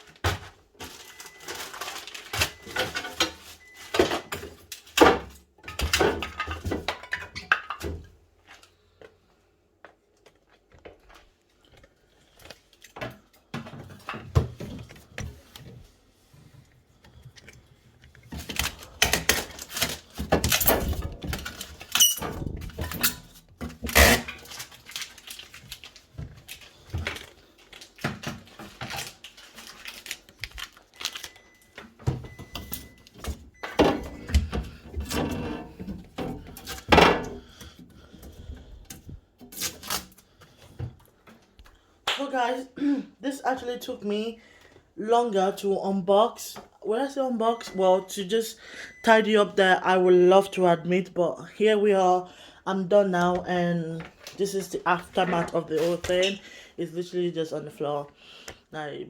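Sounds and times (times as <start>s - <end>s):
packaging rustling: 0.9s - 2.8s, 23.9s - 31.8s.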